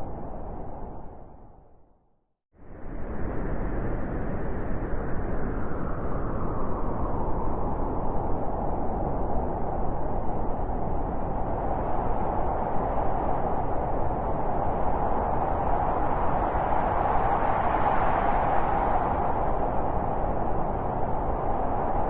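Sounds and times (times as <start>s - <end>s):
blizzard wind blowing hard: 0.0s - 1.8s, 2.6s - 22.0s
wind howling: 0.0s - 1.8s, 2.7s - 22.0s.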